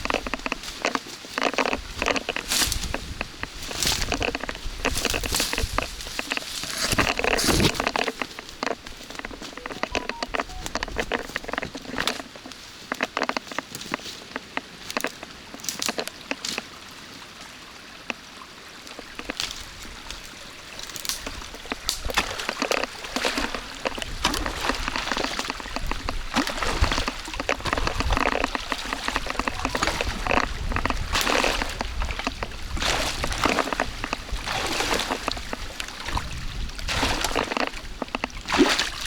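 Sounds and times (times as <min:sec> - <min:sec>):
sharp knocks and crackles: 0:21.0 - 0:35.7.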